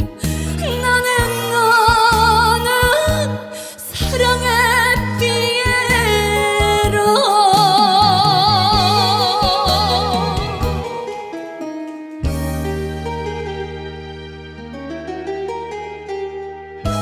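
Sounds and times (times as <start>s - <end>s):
woman singing with vibrato: 0.0s - 11.4s
live band playing: 0.0s - 11.6s.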